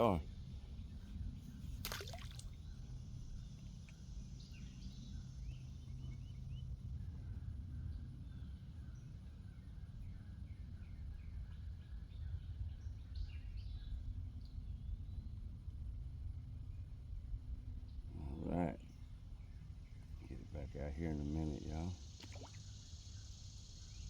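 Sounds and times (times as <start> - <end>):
low steady rumble: 14.0 - 24.0.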